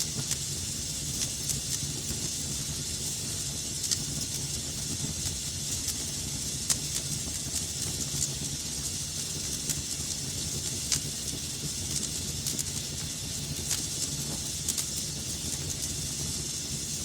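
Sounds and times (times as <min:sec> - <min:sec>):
fire crackles and pops: 0:00.0 - 0:17.0
wood fire hissing and rumbling: 0:00.0 - 0:17.0.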